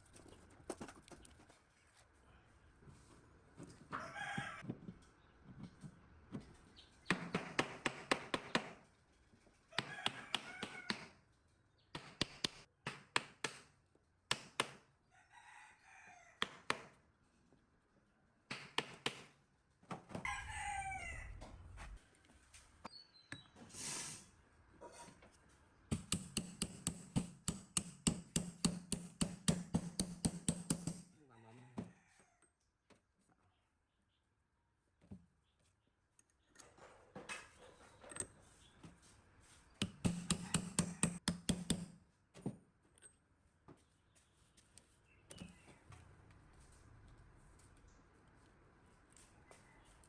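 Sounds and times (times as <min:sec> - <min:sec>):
chicken crowing and clucking: 0:03.8 - 0:04.7, 0:09.7 - 0:11.2, 0:15.0 - 0:16.4, 0:20.2 - 0:22.0, 0:31.3 - 0:32.5.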